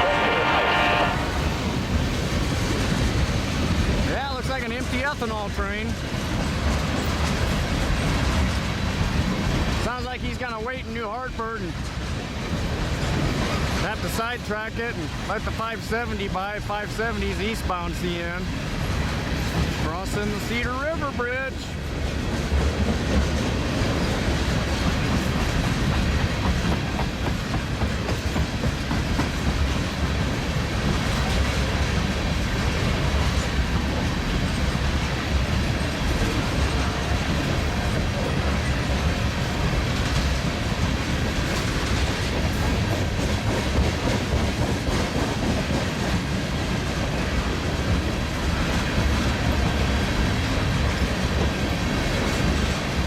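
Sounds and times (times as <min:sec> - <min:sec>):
freight train rolling over bridge: 0:00.0 - 0:53.0
wheels clattering over rail joints: 0:18.6 - 0:53.0.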